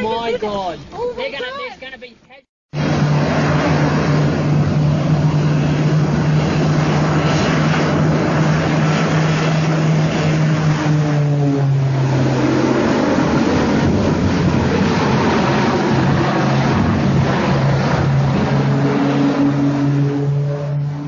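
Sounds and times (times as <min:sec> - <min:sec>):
loud engine drone: 0:02.7 - 0:21.0
rushing noise: 0:02.7 - 0:21.0.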